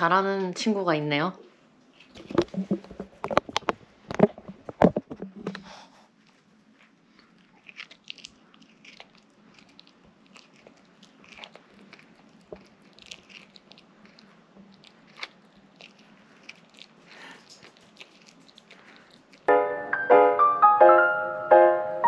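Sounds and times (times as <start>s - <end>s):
dog chewing and crunching food: 1.9s - 19.5s.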